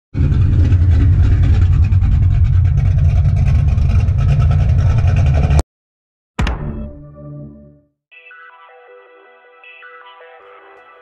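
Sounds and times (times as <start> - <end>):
car engine deep rumble: 0.1 - 5.6.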